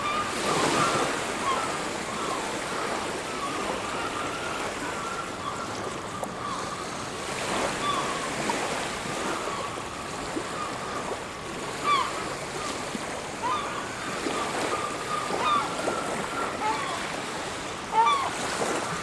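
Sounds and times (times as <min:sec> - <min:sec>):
faint bird calls: 0:13.4 - 0:17.3, 0:17.9 - 0:19.0.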